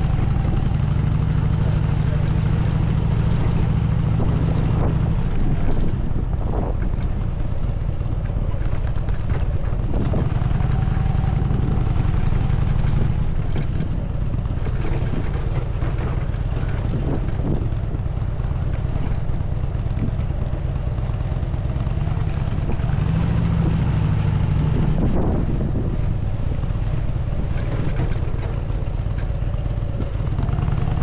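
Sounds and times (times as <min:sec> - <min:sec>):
motorcycle engine rumbling: 0:00.0 - 0:31.0.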